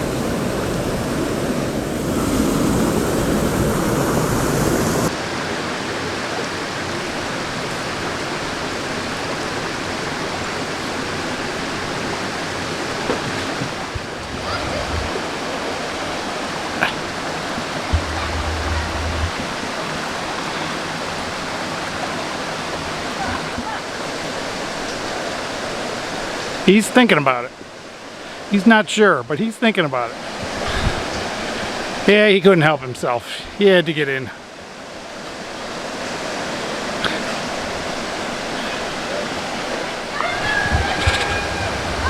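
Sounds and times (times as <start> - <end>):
waterfall rushing: 0.0 - 26.7.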